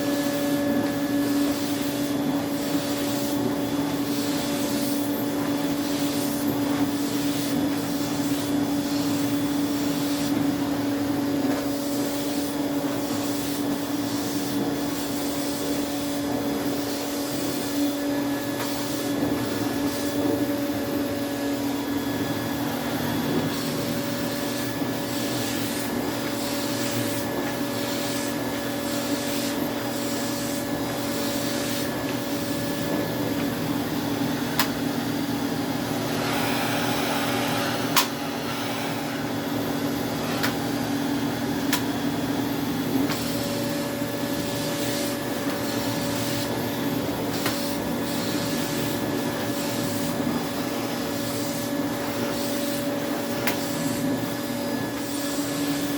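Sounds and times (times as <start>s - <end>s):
vacuum cleaner motor whine: 0.0s - 55.9s.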